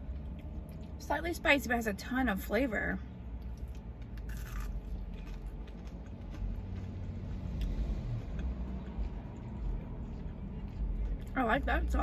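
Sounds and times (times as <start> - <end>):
soft chewing: 0.0 - 1.0, 3.3 - 12.0
low rumble in car cabin: 0.0 - 7.4.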